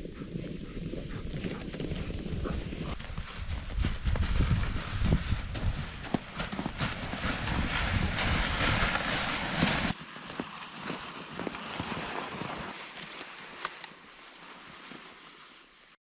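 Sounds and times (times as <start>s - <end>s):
wind buffeting microphone: 0.0s - 9.9s
footsteps: 0.0s - 15.4s.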